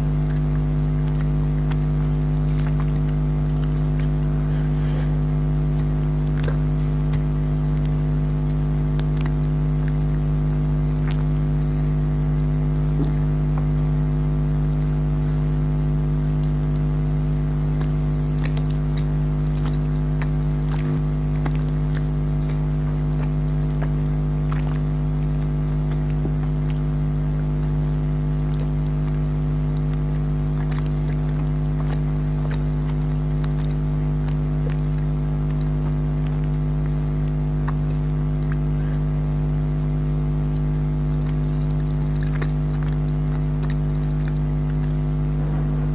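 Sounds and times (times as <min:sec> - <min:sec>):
person chewing candy: 0:00.0 - 0:45.9
loud machine hum: 0:42.2 - 0:45.9.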